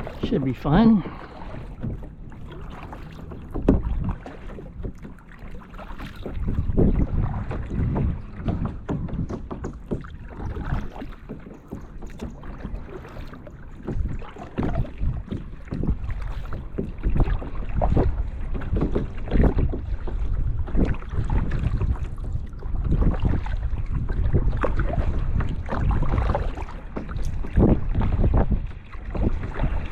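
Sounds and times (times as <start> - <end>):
water splashing and lapping: 0.0 - 29.9
wind buffeting microphone: 0.0 - 29.9.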